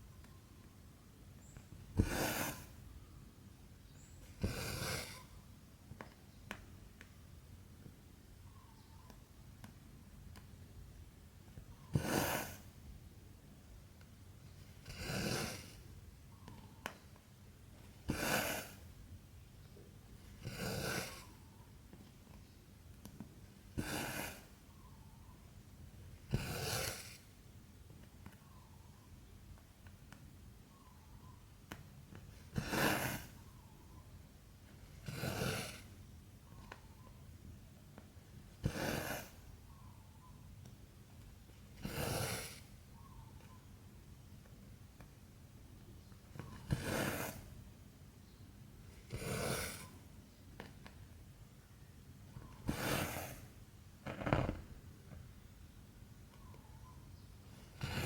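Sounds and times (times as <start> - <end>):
thread rasping through fabric: 52.4 - 54.9.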